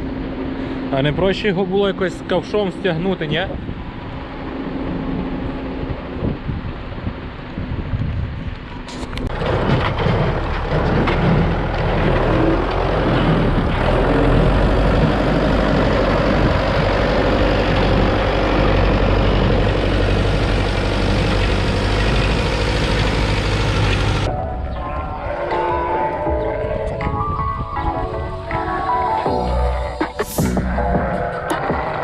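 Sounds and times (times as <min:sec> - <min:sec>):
heavy vehicle engine droning: 0:00.0 - 0:32.0.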